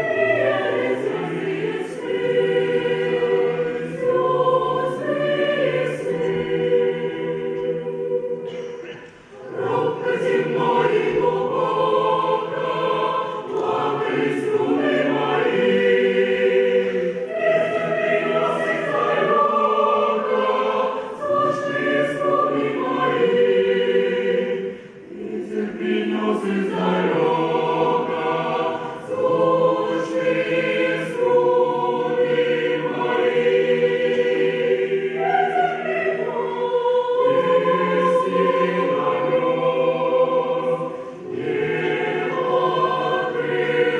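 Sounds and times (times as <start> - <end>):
mixed choir singing chords: 0.0 - 43.9.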